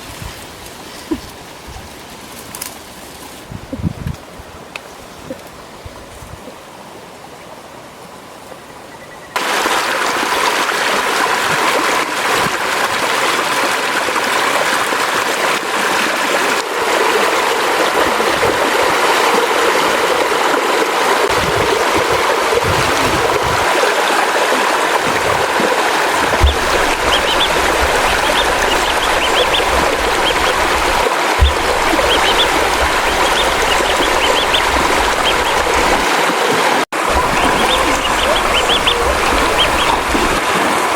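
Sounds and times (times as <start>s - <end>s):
running water rushing: 9.4s - 40.9s.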